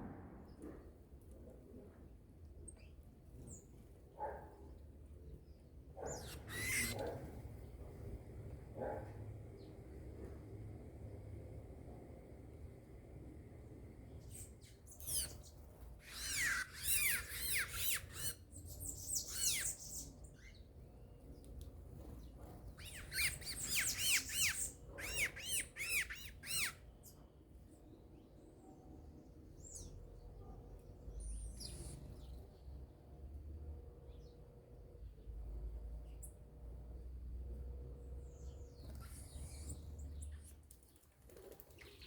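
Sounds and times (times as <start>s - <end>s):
songbirds calling: 4.6s - 33.2s, 37.7s - 42.0s.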